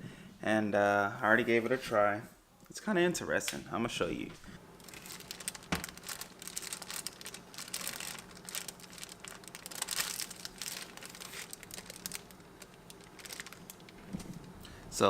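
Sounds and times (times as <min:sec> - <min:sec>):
faint steady hum: 0:00.0 - 0:15.0
wrapping crinkling: 0:04.7 - 0:14.6.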